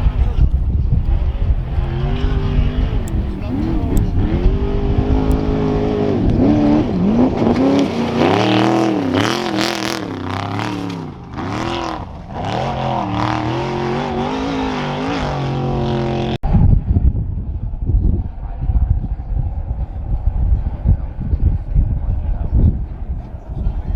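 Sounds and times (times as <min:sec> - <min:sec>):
rough low engine rumble: 0:00.0 - 0:07.0
race truck engine revving: 0:00.0 - 0:16.4.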